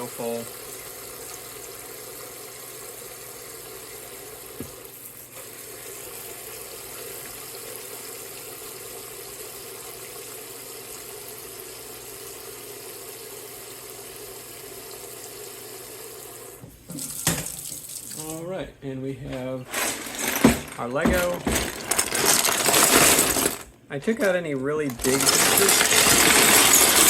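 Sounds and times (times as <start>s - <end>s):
water running into washing machine: 0.0s - 18.6s, 24.9s - 27.0s.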